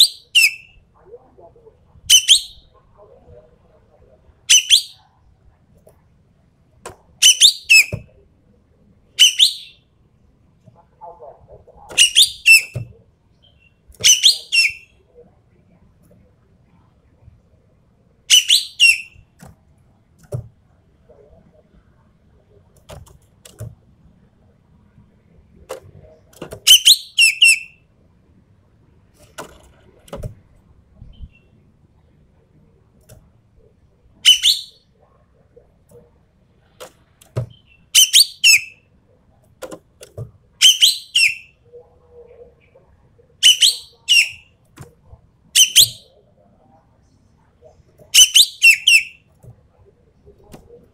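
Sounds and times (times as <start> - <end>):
bird calling shrill squeaky notes: 0.0 - 0.7, 2.1 - 2.6, 4.5 - 5.0, 7.2 - 8.0, 9.2 - 9.8, 12.0 - 12.8, 13.5 - 14.9, 18.3 - 19.2, 26.7 - 27.8, 34.2 - 34.8, 37.6 - 38.8, 40.6 - 41.5, 43.4 - 44.4, 45.6 - 46.1, 48.2 - 49.2.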